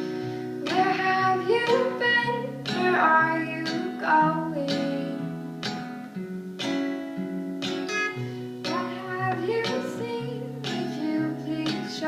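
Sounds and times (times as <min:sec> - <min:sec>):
acoustic guitar strummed: 0:00.0 - 0:12.0.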